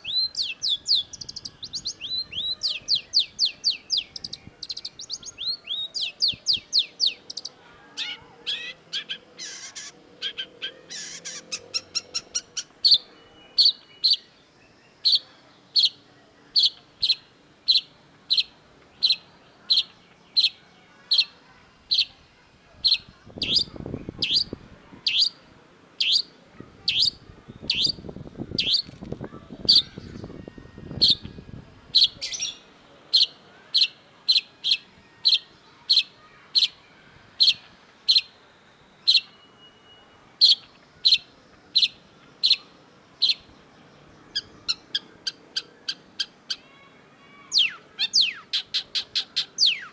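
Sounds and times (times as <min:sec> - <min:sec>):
shrike sharp calls: 0:01.3 - 0:13.7.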